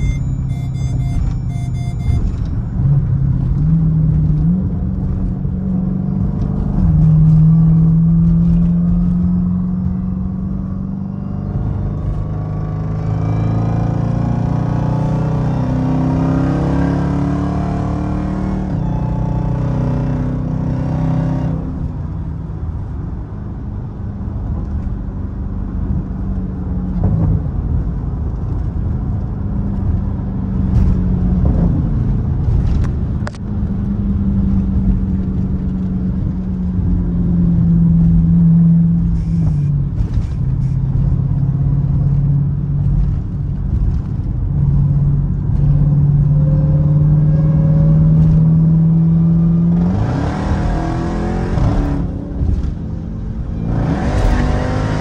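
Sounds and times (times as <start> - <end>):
car engine revving: 34.0 - 55.0.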